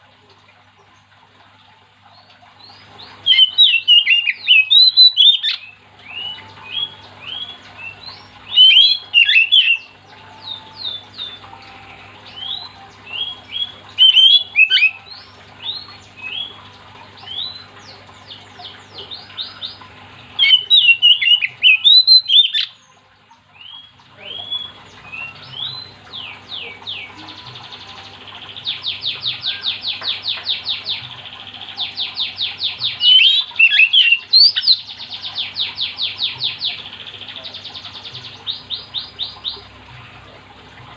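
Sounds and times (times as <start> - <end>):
bird singing whistled phrases: 3.3 - 11.4, 12.3 - 16.5, 20.4 - 22.7, 33.0 - 34.8.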